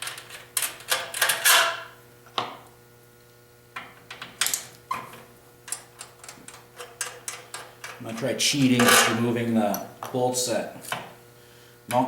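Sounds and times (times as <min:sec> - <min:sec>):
hand tools clinking on metal: 0:06.8 - 0:10.2.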